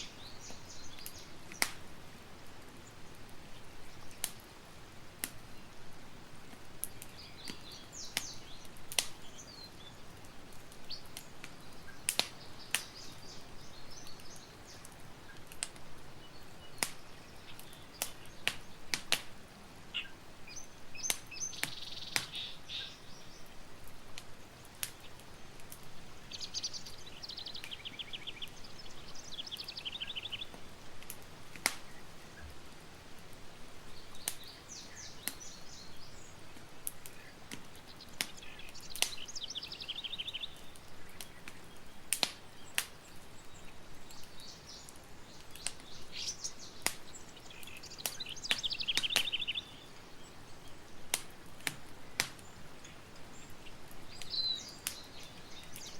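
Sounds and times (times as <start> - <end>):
campfire crackling: 0.0 - 55.9
songbird trilling: 19.9 - 23.4, 26.2 - 30.5, 38.3 - 40.7, 45.8 - 50.0, 54.1 - 55.9.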